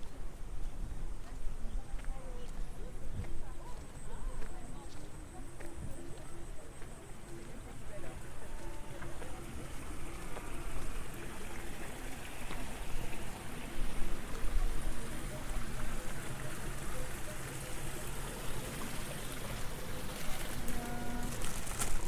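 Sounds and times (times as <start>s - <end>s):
water trickling in a channel: 5.0s - 22.0s.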